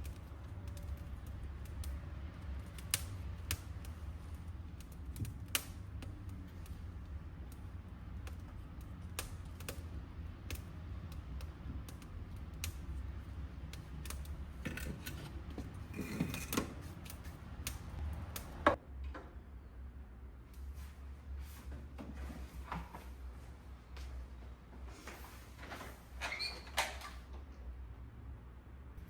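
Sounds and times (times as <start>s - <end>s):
wood fire crackling: 0.0s - 18.8s.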